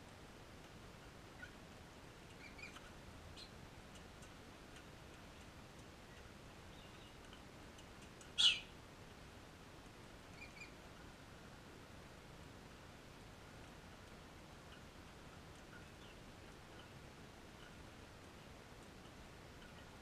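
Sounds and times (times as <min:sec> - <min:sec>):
faint small bird chirps: 0:01.3 - 0:01.6, 0:02.3 - 0:03.6, 0:06.1 - 0:07.2, 0:08.3 - 0:08.7, 0:10.3 - 0:10.8, 0:15.6 - 0:17.0
bird harsh squawk: 0:08.4 - 0:08.7.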